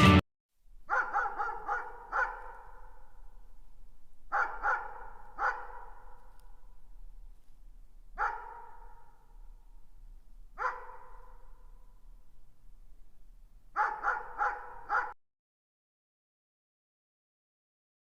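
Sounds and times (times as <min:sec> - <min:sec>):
dog barking: 0:00.9 - 0:03.2, 0:04.3 - 0:06.8, 0:08.2 - 0:09.4, 0:10.6 - 0:12.0, 0:13.7 - 0:15.2.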